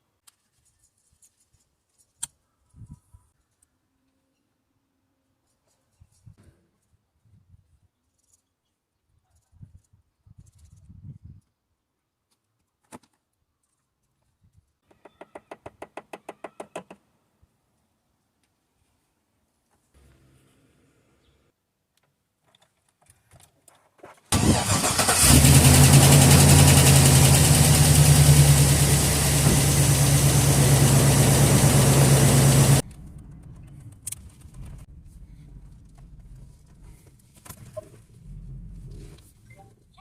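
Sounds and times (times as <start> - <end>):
engine ticking: 24.4 - 33.8
car engine starting and running: 24.4 - 37.1.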